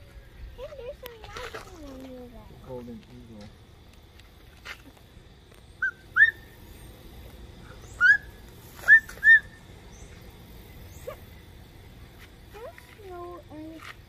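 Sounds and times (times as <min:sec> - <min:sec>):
bird chirping: 0:05.6 - 0:12.8.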